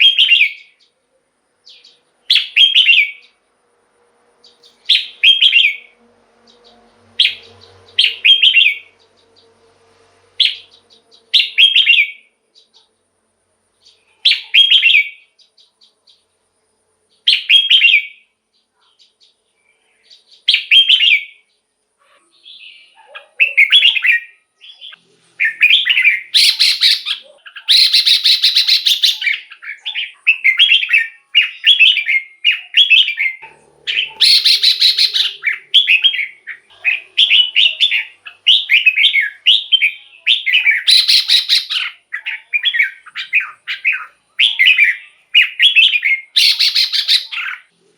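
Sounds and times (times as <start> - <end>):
bulbul singing warbled phrases: 0.0 - 1.0, 1.6 - 3.4, 4.4 - 9.5, 10.4 - 12.8, 13.8 - 16.3, 17.1 - 47.9.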